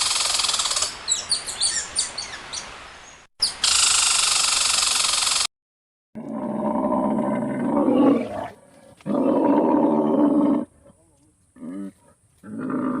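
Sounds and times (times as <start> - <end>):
lion roaring: 6.2 - 11.0, 11.6 - 13.0
lion grunting: 6.2 - 13.0.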